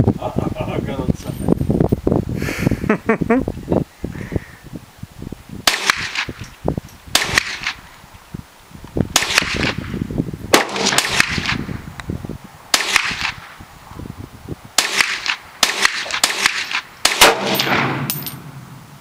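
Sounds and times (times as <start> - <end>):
gunshots in rapid groups: 9.2 - 9.8, 10.5 - 11.6, 12.7 - 13.4, 14.8 - 18.1.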